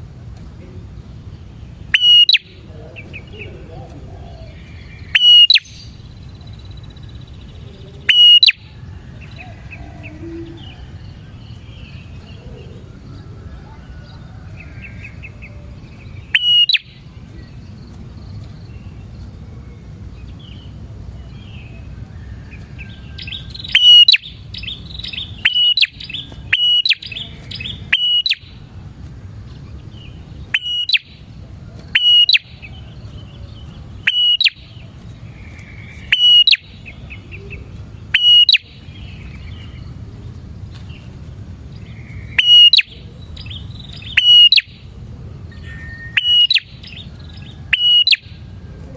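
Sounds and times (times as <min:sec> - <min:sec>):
steady low hum: 0:00.0 - 0:48.9
bird sharp chirps: 0:01.9 - 0:03.6, 0:04.2 - 0:12.8, 0:16.2 - 0:17.7, 0:23.1 - 0:28.6, 0:30.4 - 0:31.3, 0:31.9 - 0:39.8, 0:41.8 - 0:44.9, 0:45.5 - 0:48.4
soft chattering: 0:02.0 - 0:04.8.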